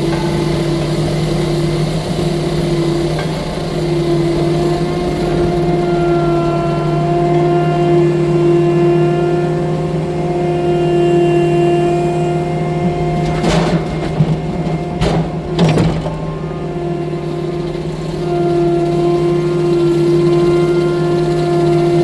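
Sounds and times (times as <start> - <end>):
loader engine running: 0.0 - 22.0
machine clunks: 12.8 - 17.1.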